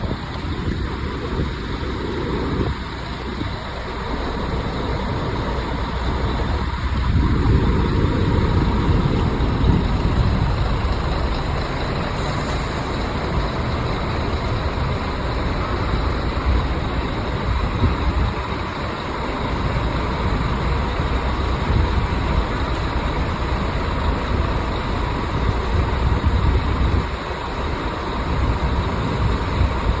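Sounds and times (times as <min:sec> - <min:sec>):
bus engine and road rumble: 0:00.0 - 0:30.0.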